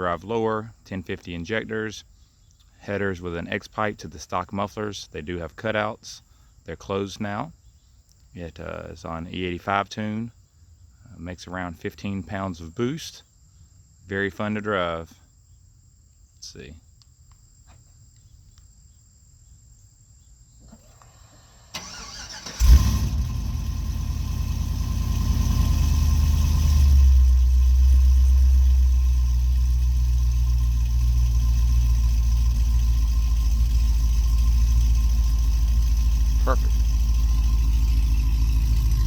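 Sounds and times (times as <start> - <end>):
car engine cranking and starting: 20.7 - 39.0
car engine high idle: 20.8 - 39.0.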